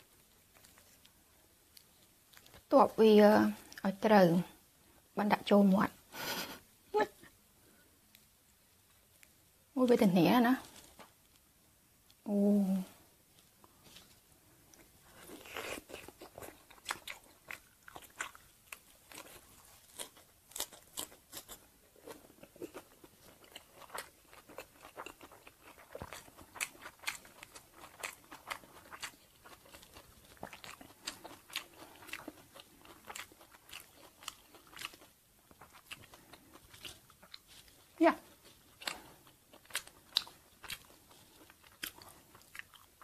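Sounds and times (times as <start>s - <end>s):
crunching and chewing crispy food: 0.1s - 2.7s, 14.7s - 43.0s.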